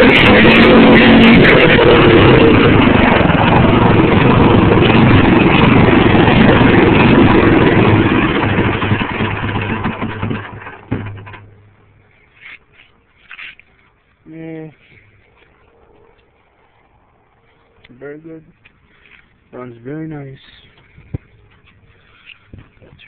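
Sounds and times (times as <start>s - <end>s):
small engine running loudly: 0.0s - 11.5s.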